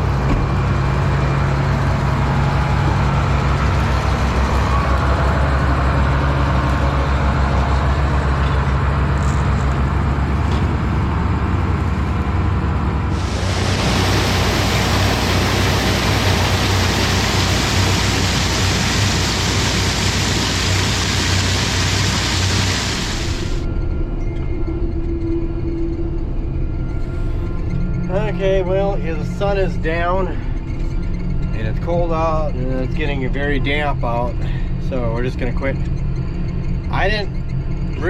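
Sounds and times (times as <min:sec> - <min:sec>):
combine harvester engine drone: 0:00.0 - 0:38.0
loud rushing hiss: 0:13.1 - 0:23.6.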